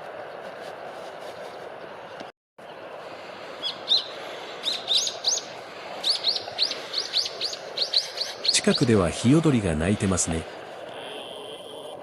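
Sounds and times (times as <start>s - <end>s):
background hum: 0.0s - 12.0s
birds chirping: 3.5s - 12.0s.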